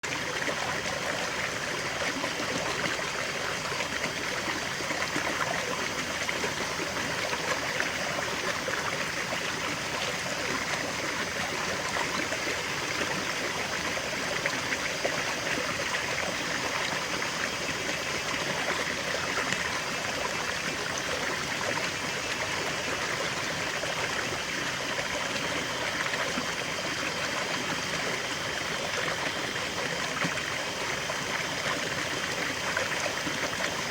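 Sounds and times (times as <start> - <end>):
river water babbling over stones: 0.0 - 33.9.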